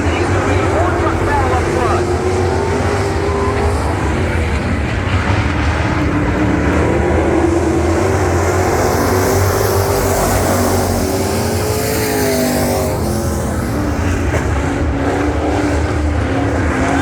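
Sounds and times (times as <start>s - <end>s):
race truck engines revving: 0.0s - 17.0s.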